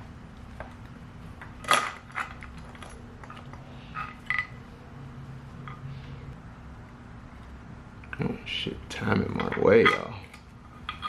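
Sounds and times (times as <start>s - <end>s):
steady low hum: 0.0s - 11.0s
metal parts clinking: 1.6s - 4.6s, 9.3s - 11.0s.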